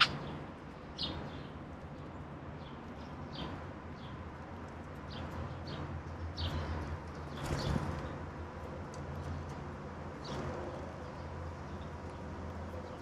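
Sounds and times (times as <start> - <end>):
songbirds chirping: 0.0 - 8.2.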